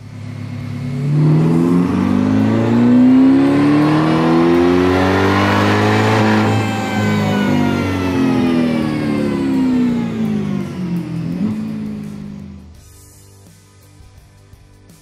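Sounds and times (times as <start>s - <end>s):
engine revving on dyno: 0.0s - 12.7s.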